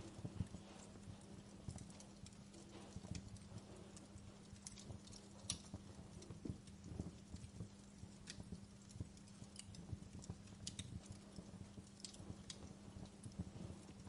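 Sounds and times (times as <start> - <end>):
steady low hum: 0.0 - 14.0
wood fire crackling: 0.0 - 14.0.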